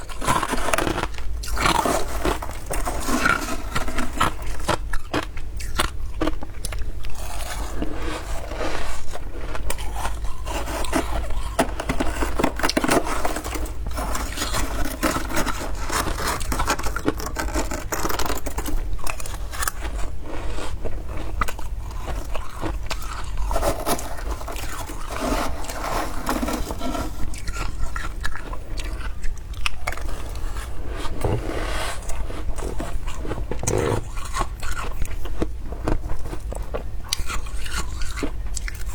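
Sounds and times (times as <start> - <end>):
frost being scraped and crunched: 0.3 - 4.8, 7.2 - 28.2.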